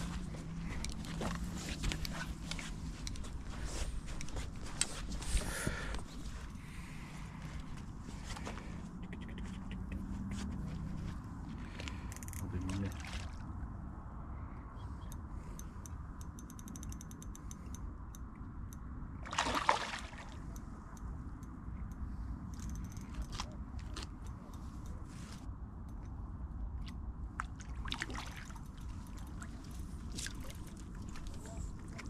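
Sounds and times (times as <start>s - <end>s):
light ticks: 0.7s - 3.3s, 4.1s - 4.9s, 15.1s - 18.9s
water sloshing and splashing: 12.7s - 13.6s, 19.2s - 20.6s, 26.8s - 32.0s.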